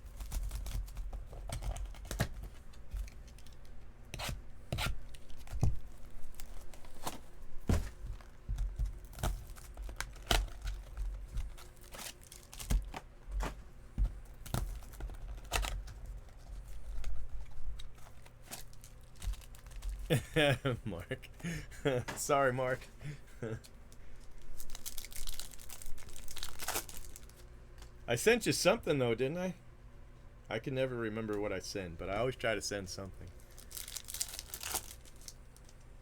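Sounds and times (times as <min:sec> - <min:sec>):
packaging tearing and crinkling: 0:00.0 - 0:13.5, 0:14.3 - 0:20.2, 0:23.6 - 0:27.5, 0:33.3 - 0:35.8.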